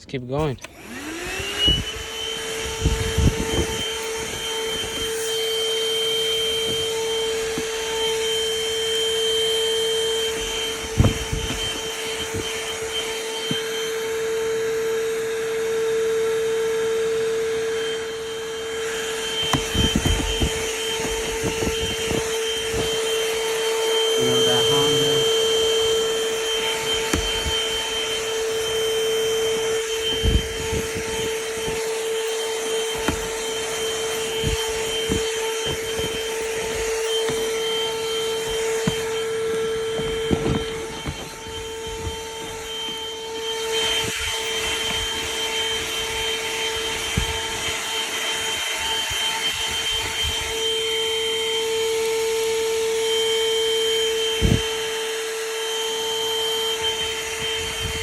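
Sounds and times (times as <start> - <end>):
handheld vacuum motor whine: 0.0 - 58.0.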